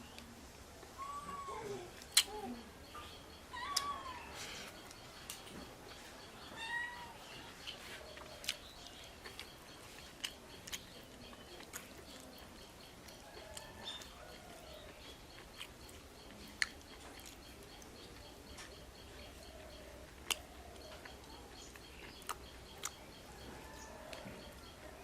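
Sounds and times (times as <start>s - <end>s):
cat meowing: 6.6s - 7.2s.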